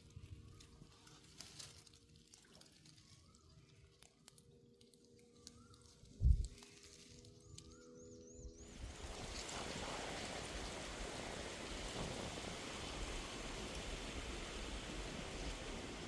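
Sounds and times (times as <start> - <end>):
soft bird chirps: 2.9 - 9.4.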